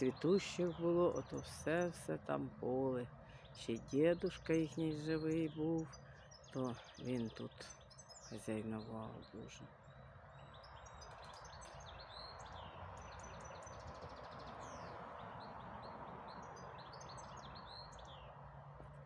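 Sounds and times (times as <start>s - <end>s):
bird trill: 0.0s - 18.3s
outdoor background hush: 0.0s - 19.0s
songbirds chirping and singing: 0.0s - 19.0s.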